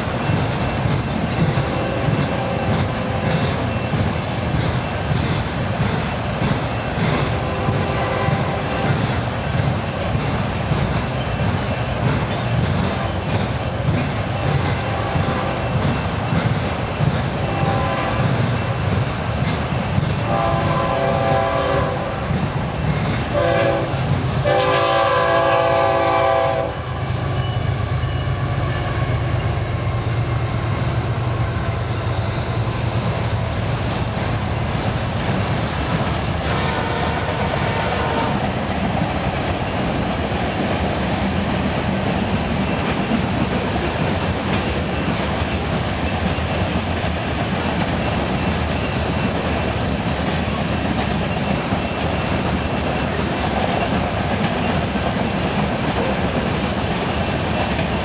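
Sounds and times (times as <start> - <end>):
freight cars rumbling and clattering: 0.0 - 20.3
locomotive horn chord blasts: 7.4 - 8.9, 17.4 - 18.3, 20.2 - 22.2, 23.3 - 26.9, 36.4 - 38.4.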